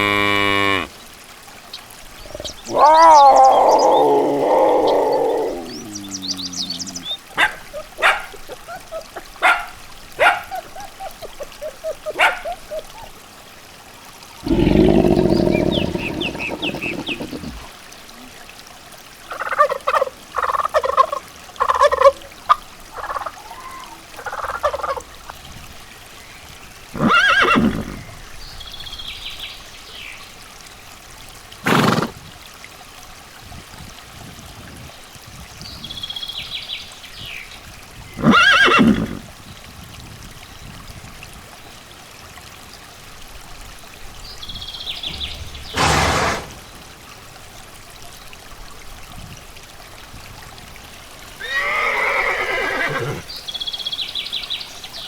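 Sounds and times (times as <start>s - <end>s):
low drawn-out animal call: 0.0s - 0.9s, 2.3s - 9.6s, 14.4s - 17.7s
poultry gobbling: 10.2s - 13.1s
sharp knock: 45.7s - 46.6s.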